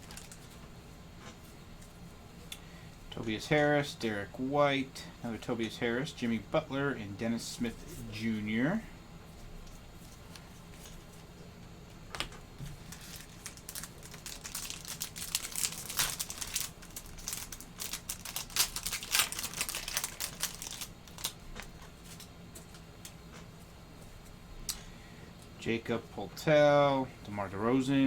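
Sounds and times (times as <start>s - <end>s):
wrapper tearing and crinkling: 0.0s - 0.5s, 12.8s - 22.2s.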